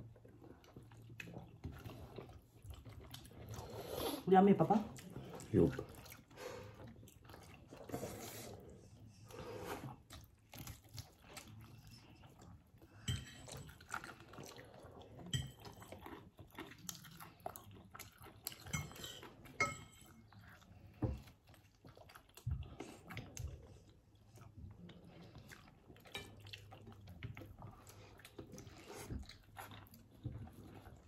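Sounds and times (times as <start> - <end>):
people chewing and biting: 0.0 - 4.2, 4.9 - 31.0
dishes clinking: 18.7 - 20.1.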